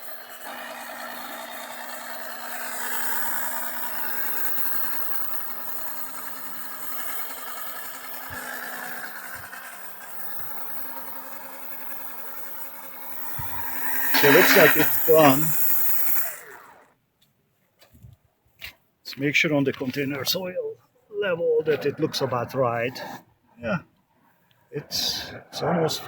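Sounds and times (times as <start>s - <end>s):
oil pump humming: 0.7s - 16.9s.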